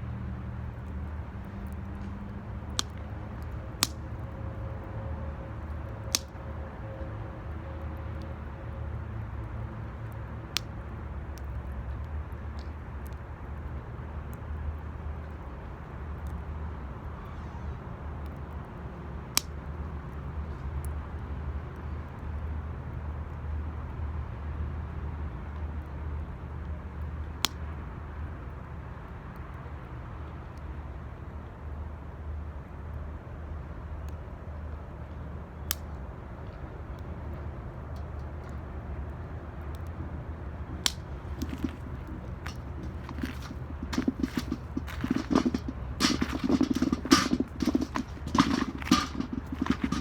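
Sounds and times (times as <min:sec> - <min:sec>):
bonfire rumble: 0:40.8 - 0:50.0
fire crackling: 0:40.8 - 0:50.0
fire popping: 0:40.8 - 0:50.0.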